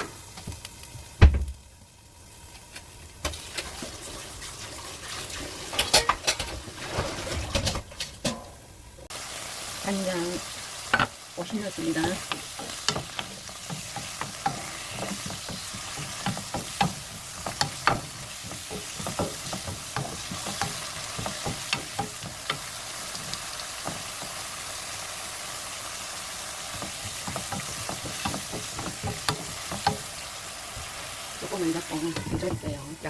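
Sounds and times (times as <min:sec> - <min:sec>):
vegetables sizzling in a pan: 0:00.0 - 0:33.0
utensil stirring and scraping: 0:10.9 - 0:24.4, 0:26.7 - 0:32.8.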